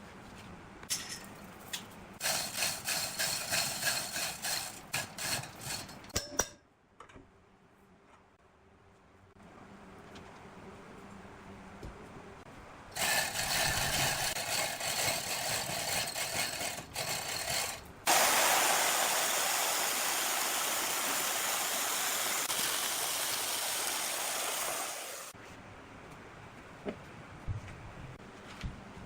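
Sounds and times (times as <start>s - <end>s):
power tool rushing noise: 13.0s - 25.4s.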